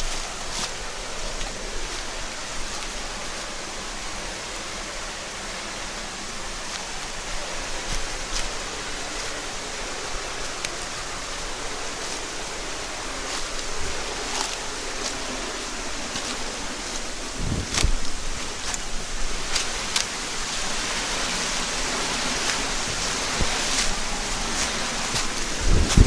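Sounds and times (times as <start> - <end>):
stream flowing: 0.0 - 26.0.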